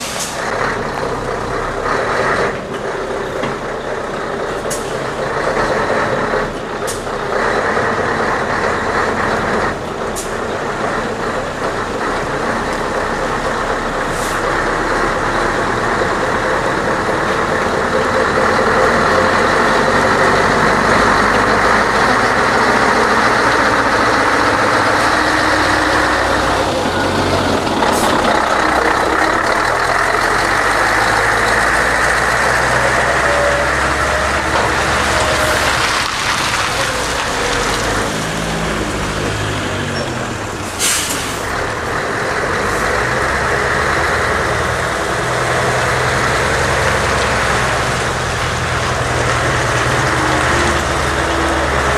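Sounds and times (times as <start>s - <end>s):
air brake hisses: 0.0s - 0.4s, 40.6s - 41.5s
diesel truck engine running: 0.0s - 51.9s.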